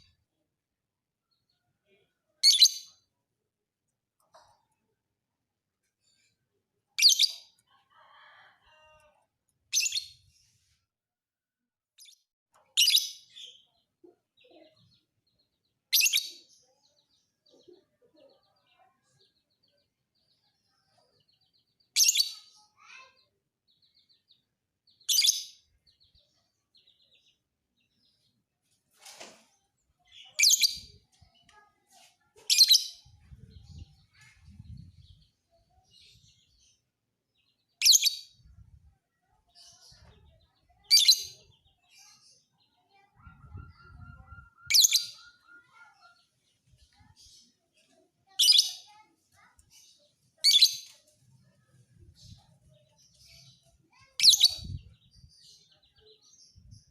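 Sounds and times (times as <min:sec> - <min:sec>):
faint bird twittering: 0:39.2 - 0:46.2.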